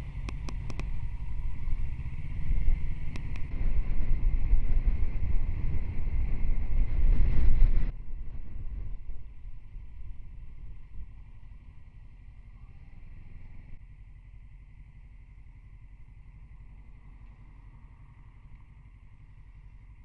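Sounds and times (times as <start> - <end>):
wind buffeting: 0.0 - 11.2
motorcycle engine rumble: 0.0 - 20.0.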